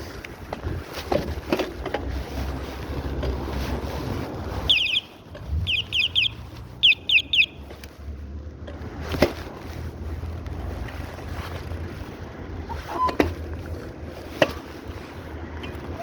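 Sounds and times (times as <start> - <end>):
wind rumble on microphone: 0.0 - 7.0, 7.6 - 16.0
bird calling: 4.6 - 7.7.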